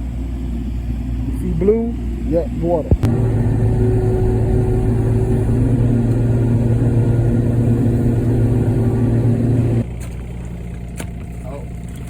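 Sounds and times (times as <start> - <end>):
excavator diesel engine running: 2.9 - 10.9.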